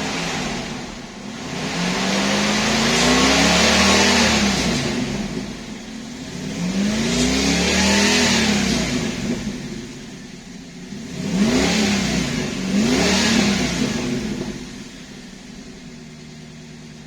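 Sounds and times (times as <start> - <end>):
loud rushing hiss: 0.0 - 5.8
car engine revving: 0.0 - 17.0.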